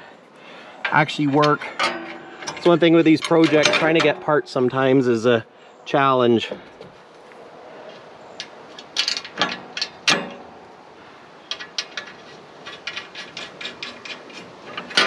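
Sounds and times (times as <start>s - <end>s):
metal tools knocking: 0.8s - 4.8s.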